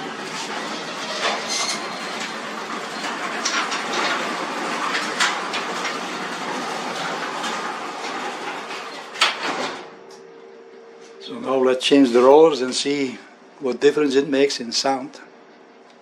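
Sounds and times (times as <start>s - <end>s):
garage door rattling on tracks: 0.0s - 10.0s.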